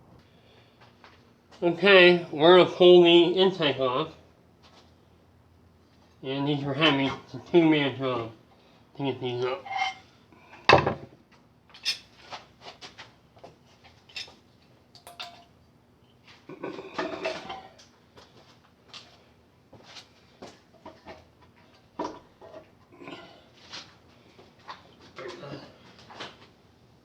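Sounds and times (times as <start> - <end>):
squeaky metal scraping: 9.6 - 10.0.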